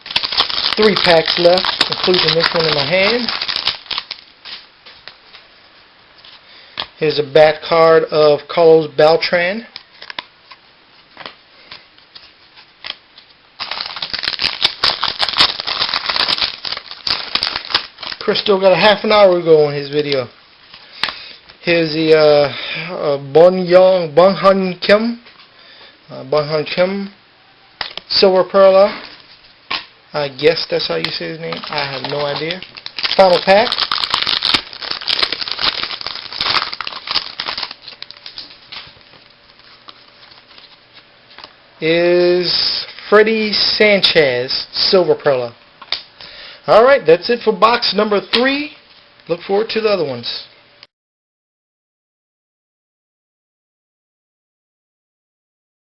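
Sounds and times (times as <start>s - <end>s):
cards rustling and clicking: 0.0s - 5.4s, 11.2s - 18.5s, 30.4s - 41.5s
foil wrapper crinkling: 0.0s - 5.4s, 11.2s - 21.2s, 28.6s - 41.5s.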